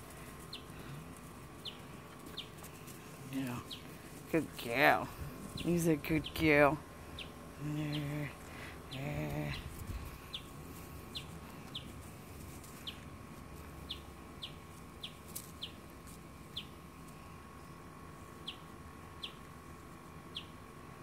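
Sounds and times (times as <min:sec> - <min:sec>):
bird chirping: 0:01.6 - 0:02.6, 0:05.5 - 0:06.5, 0:07.1 - 0:08.2, 0:10.3 - 0:10.5, 0:11.1 - 0:11.9, 0:13.8 - 0:15.8, 0:16.5 - 0:16.8, 0:18.4 - 0:19.4, 0:20.3 - 0:20.6.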